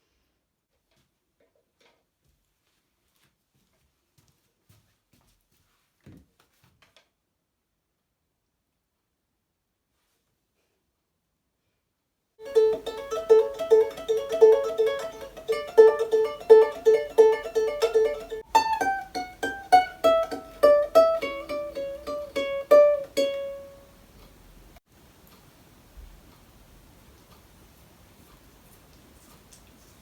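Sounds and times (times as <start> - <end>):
ukulele picking: 12.4 - 24.7.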